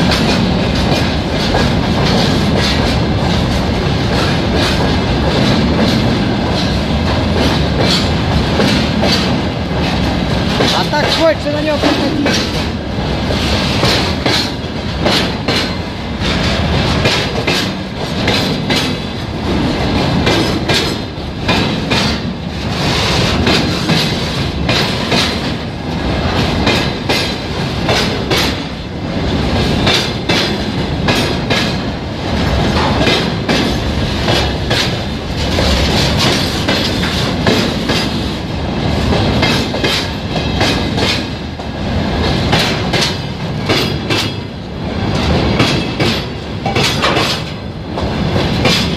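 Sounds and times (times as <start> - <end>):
wagon wheels clacking over rail joints: 0.0 - 28.8, 29.4 - 38.4, 39.0 - 44.5, 45.1 - 48.9
freight train rumble: 0.0 - 48.9.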